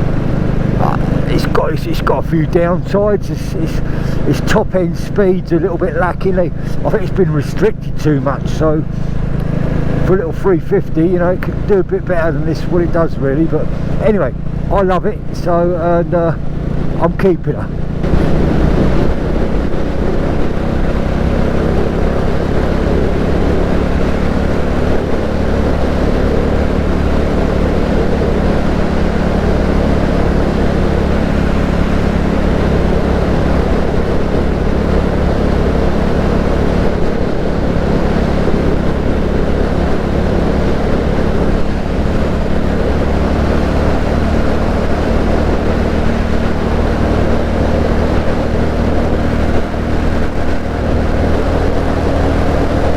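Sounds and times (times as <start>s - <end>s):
motorcycle engine cruising: 0.0s - 52.9s
wind and road noise: 0.0s - 52.9s.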